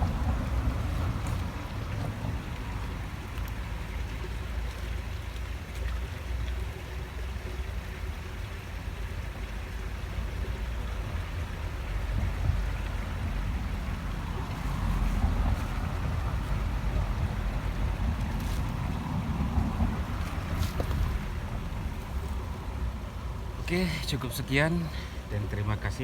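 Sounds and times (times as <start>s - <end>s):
wind rumble on microphone: 0.0s - 4.0s, 10.9s - 23.6s
flowing river water: 0.0s - 26.0s.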